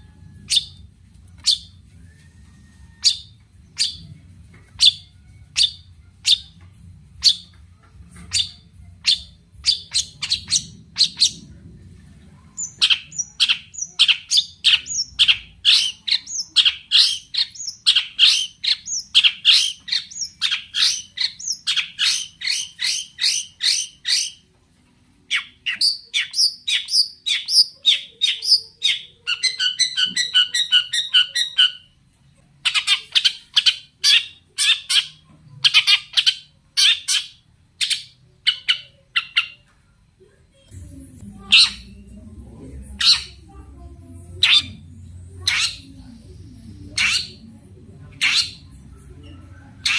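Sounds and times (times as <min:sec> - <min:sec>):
shrike singing: 0:40.8 - 0:49.9.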